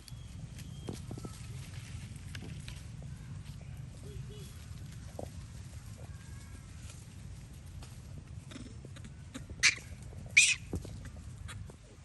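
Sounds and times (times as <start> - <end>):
monkey shrill cries: 9.6 - 9.8, 10.4 - 10.7.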